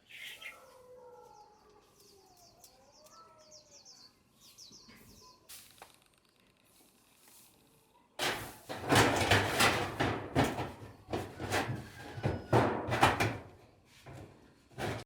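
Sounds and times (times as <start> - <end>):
knocks and thuds: 8.2 - 15.0.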